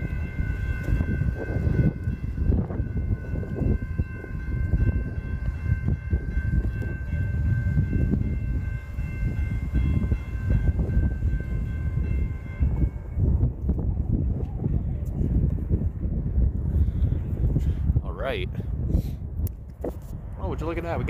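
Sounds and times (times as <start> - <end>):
railroad crossing bells ringing: 0.0 - 13.6.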